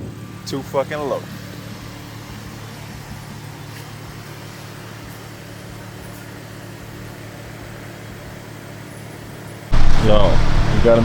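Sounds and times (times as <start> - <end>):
car engine idling: 9.7 - 11.0.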